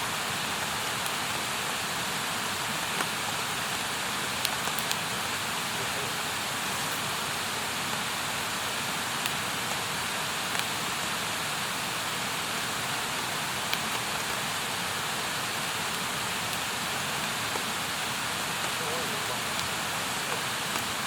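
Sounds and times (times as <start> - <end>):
campfire burning: 0.0 - 21.0
crackling wood pops: 4.4 - 5.1, 9.2 - 9.8, 10.5 - 10.8, 13.6 - 14.4, 15.9 - 21.0.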